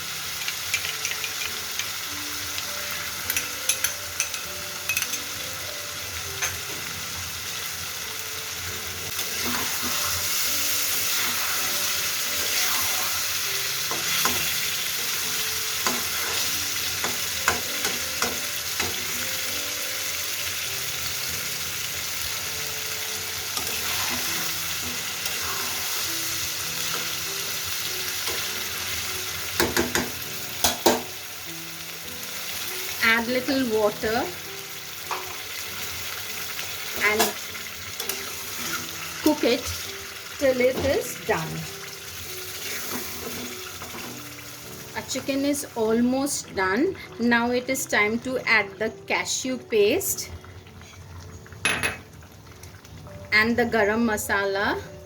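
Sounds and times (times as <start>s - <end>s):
gravy sizzling in a pan: 0.0s - 55.0s
spatula clicking and scraping pan: 0.4s - 2.0s, 13.9s - 14.7s, 15.3s - 19.2s, 42.6s - 44.3s.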